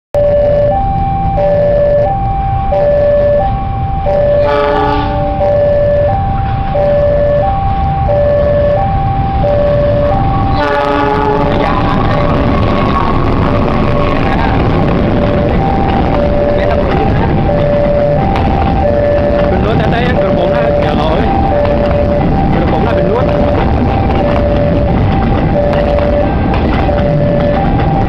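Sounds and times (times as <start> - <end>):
level-crossing warning signal: 0.2 - 28.0
train rumbling past: 0.2 - 28.0
locomotive multi-note horn: 3.0 - 7.5, 8.3 - 14.7.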